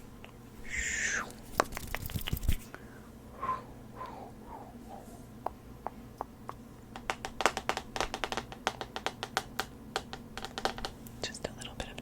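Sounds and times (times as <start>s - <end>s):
asmr tapping and clicking: 5.4s - 11.0s.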